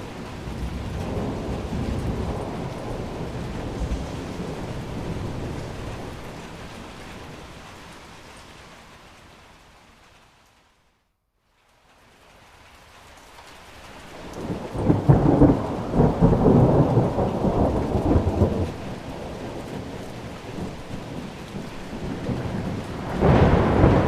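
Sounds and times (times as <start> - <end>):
rolling thunder: 0.0 - 7.6, 14.2 - 24.0
steady rain: 0.0 - 24.0.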